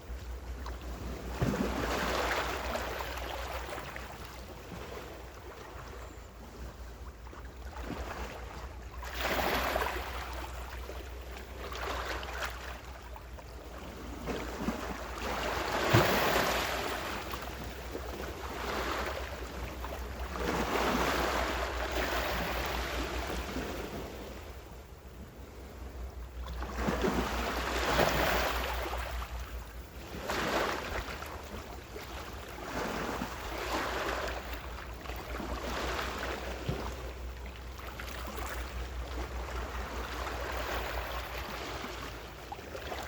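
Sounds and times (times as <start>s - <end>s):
small waves breaking on shore: 0.0s - 43.0s.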